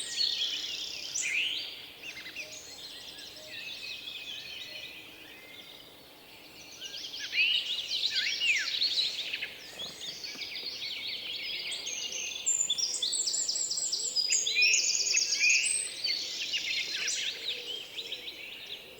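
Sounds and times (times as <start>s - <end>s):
small birds chirping: 6.8s - 18.9s.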